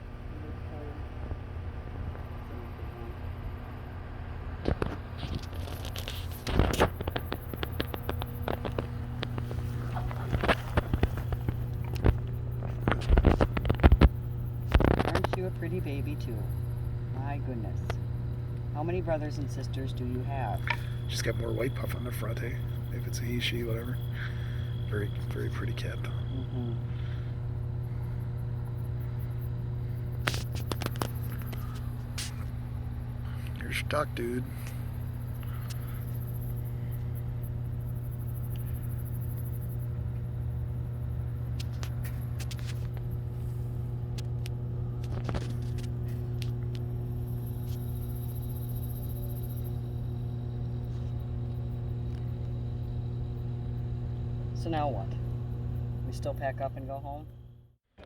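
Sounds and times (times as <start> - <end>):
steady low hum: 0.0 - 57.9
sharp clicks and rattles: 4.7 - 27.7, 28.3 - 37.1.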